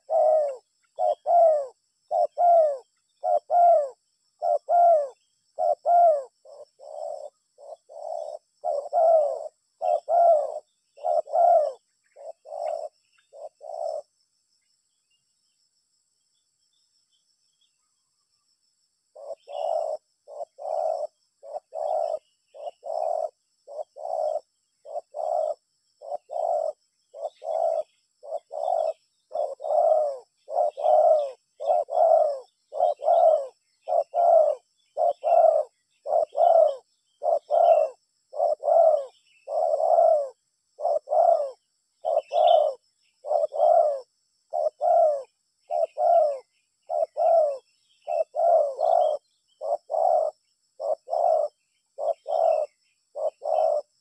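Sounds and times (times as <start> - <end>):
dove cooing: 0.0 - 14.2, 19.1 - 54.0.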